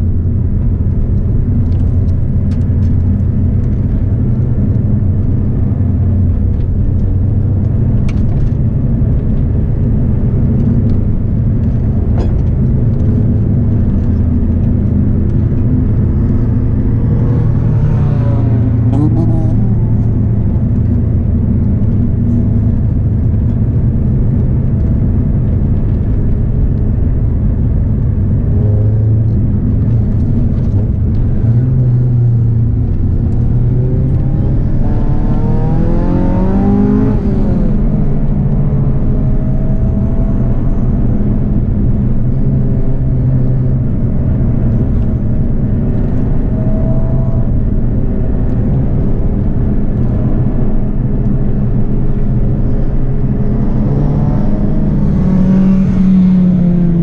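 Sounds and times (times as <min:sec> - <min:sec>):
car engine running hard: 0:00.0 - 0:57.0.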